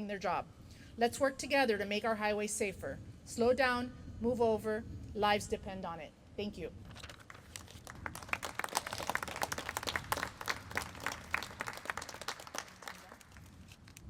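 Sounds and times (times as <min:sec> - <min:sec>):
small crowd applauding: 0:07.1 - 0:14.0.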